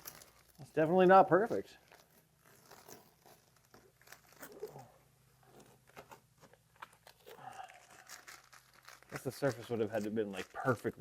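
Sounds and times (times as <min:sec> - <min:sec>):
masking tape peeling off: 0:01.9 - 0:04.9, 0:05.8 - 0:11.0.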